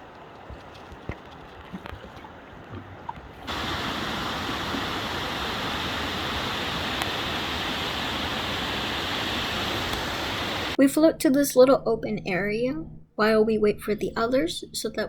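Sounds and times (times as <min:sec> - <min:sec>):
river rapids rushing: 0:03.5 - 0:10.8.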